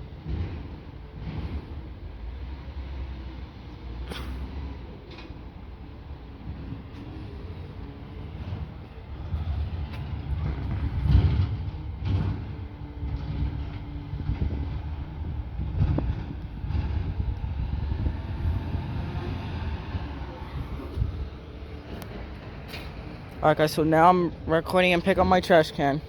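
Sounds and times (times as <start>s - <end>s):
garbage truck engine running: 0.0s - 26.0s
clanks and knocks: 8.4s - 14.9s.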